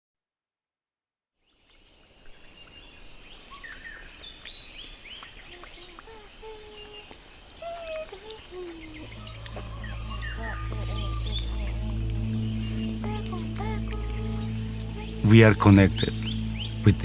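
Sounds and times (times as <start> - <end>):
insects chorus: 1.7 - 17.0
birds chirping and whistling: 6.6 - 17.0.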